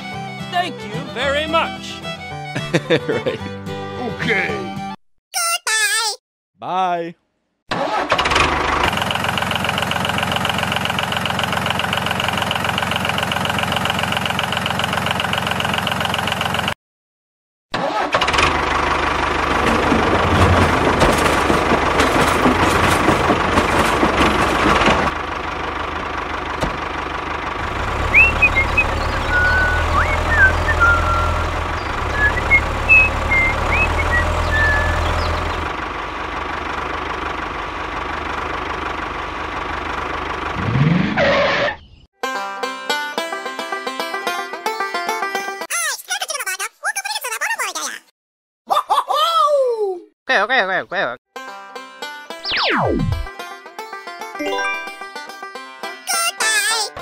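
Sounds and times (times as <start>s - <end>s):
short chirps: 54.4s - 55.1s.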